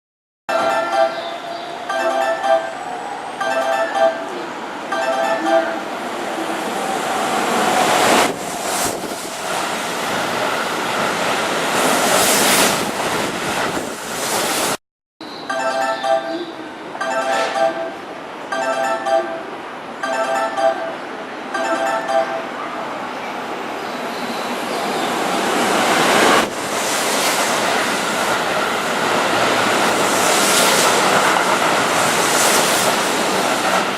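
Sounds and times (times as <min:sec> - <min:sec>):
electric train passing: 0:00.5 - 0:14.8, 0:15.5 - 0:33.9
wind buffeting microphone: 0:06.2 - 0:14.7.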